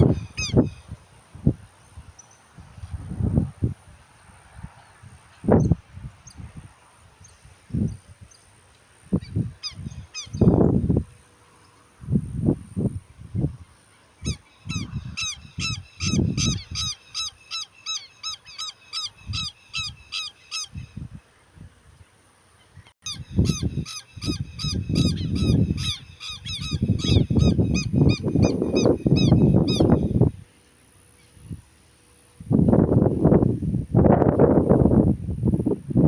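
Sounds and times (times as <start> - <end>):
bird short high calls: 14.2 - 21.0, 23.0 - 30.1.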